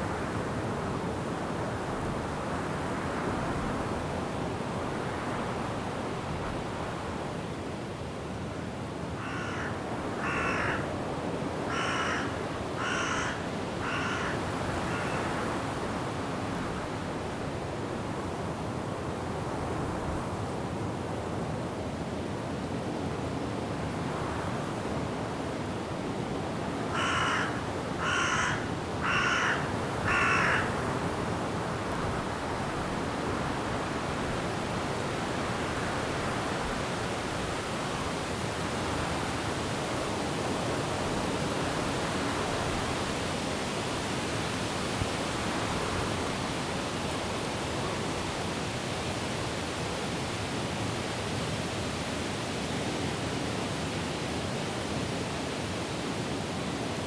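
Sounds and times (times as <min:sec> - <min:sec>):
wind rushing through trees: 0:00.0 - 0:57.0
crow cawing: 0:09.2 - 0:10.9, 0:11.7 - 0:15.4, 0:26.9 - 0:30.8.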